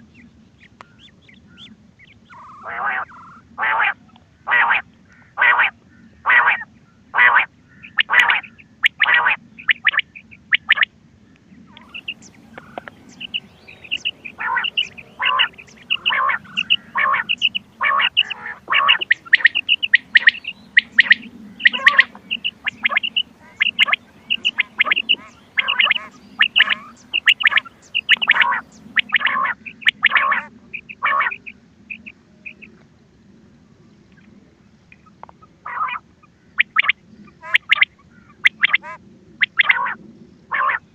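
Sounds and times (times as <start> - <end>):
quail call notes: 2.3 - 10.9, 11.7 - 32.7, 35.0 - 40.9
high-pitched quail notes: 11.7 - 32.6.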